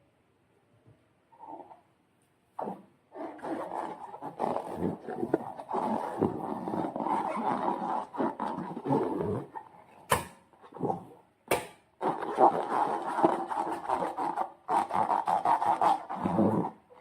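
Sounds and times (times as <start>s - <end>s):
wet slime squelching: 2.6s - 10.8s, 12.0s - 17.0s
rubbery rubbing of balloon: 2.6s - 11.1s, 12.0s - 17.0s.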